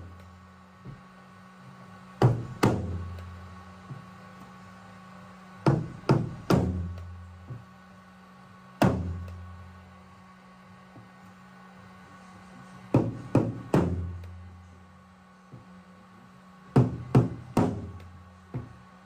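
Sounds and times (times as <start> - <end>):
faint steady hum: 0.0 - 19.0
drum machine beat with low thuds: 2.2 - 3.2, 16.8 - 18.8.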